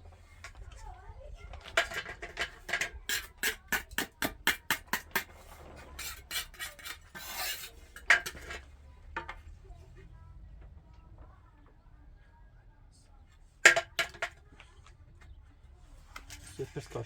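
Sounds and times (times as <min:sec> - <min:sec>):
trowel scraping mortar: 0:02.2 - 0:08.7.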